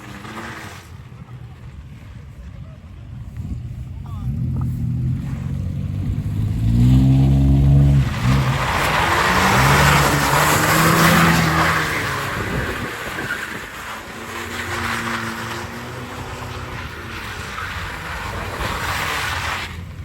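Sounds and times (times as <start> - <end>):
spinning tyres hissing: 0.0 - 20.0
truck engine revving: 3.2 - 20.0.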